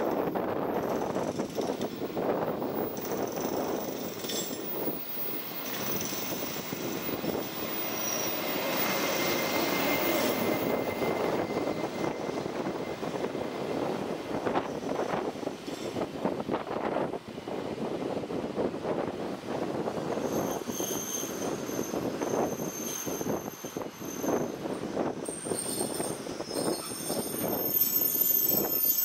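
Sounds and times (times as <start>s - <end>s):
train wheels rumbling on rails: 0.0s - 29.0s
thin high squeal: 3.3s - 13.4s, 20.3s - 24.6s, 25.3s - 29.0s.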